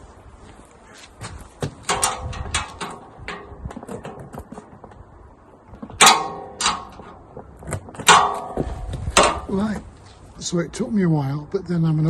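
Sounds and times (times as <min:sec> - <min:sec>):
metal parts clicking and knocking: 0:01.9 - 0:04.6
ringing metallic clank: 0:06.0 - 0:07.2, 0:08.1 - 0:09.7.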